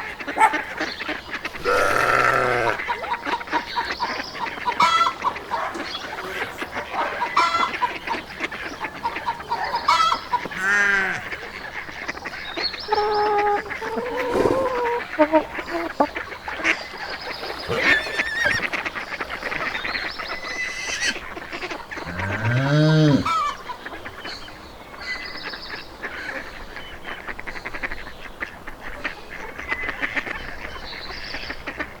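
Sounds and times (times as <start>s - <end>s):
high animal calls chatter: 0.2s - 23.6s
cow mooing: 1.5s - 2.8s, 17.7s - 18.6s, 22.0s - 23.4s.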